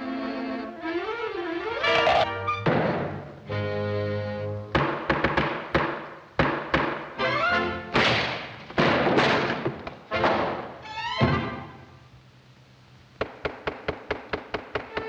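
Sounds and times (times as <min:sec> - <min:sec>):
cartoon orchestral music: 0:00.0 - 0:02.7, 0:07.2 - 0:07.9
sharp thumps and knocks: 0:04.7 - 0:07.1.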